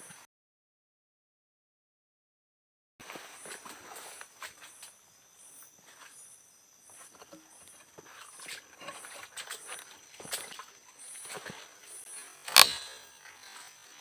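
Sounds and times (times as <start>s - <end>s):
insects whining: 3.0s - 14.0s
soft insect chirp: 3.0s - 14.0s.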